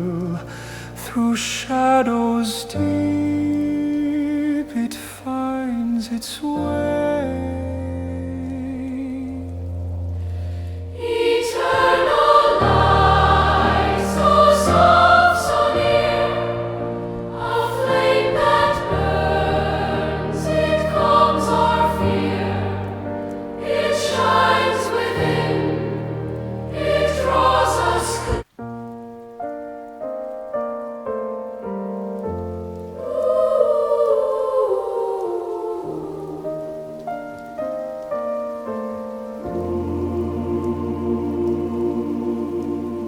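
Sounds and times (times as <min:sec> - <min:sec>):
choir singing: 0:10.9 - 0:28.5, 0:32.8 - 0:37.4, 0:39.3 - 0:43.0.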